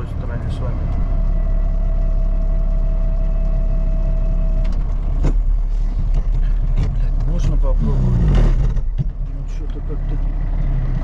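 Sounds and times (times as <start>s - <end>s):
truck engine running under load: 0.0s - 11.0s.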